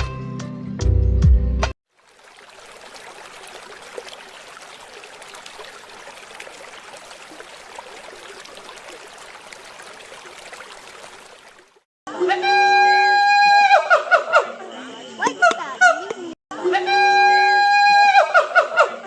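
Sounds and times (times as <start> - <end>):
running water splashing: 1.9 - 11.9.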